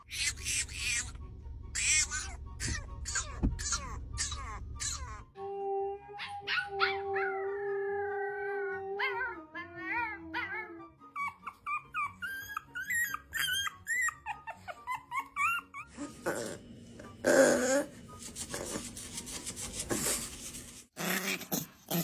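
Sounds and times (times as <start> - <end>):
background music: 0.0 - 20.9
puppy howling and yipping: 1.8 - 5.2, 6.0 - 16.2.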